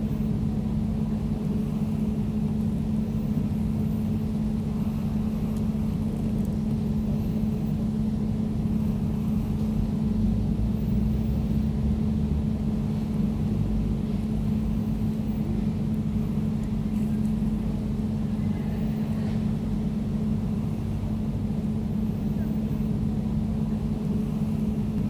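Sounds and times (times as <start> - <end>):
air conditioner humming: 0.0 - 25.0.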